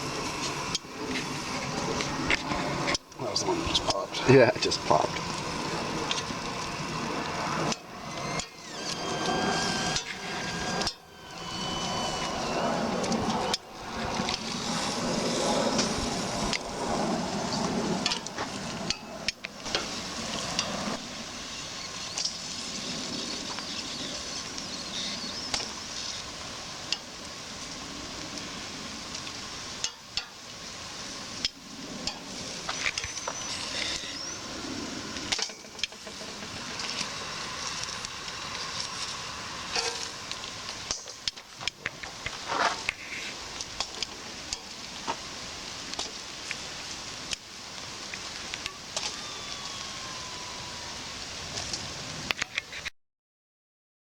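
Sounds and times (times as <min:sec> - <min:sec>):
chile pods roasting sizzling: 0:00.0 - 0:52.9.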